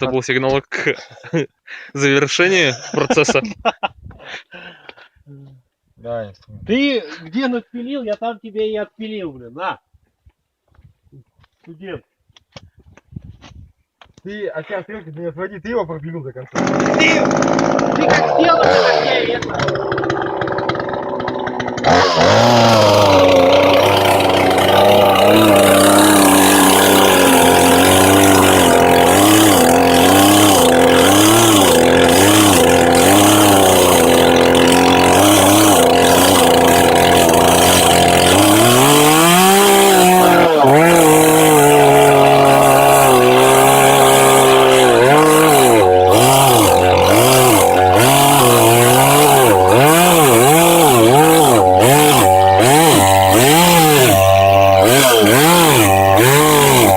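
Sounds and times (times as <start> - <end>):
chainsaw cutting log: 16.5 - 56.9.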